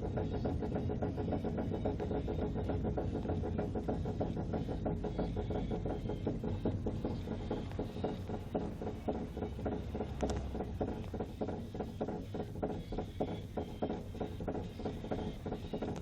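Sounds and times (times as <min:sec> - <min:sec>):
wheel bearing knocking: 0:00.0 - 0:16.0.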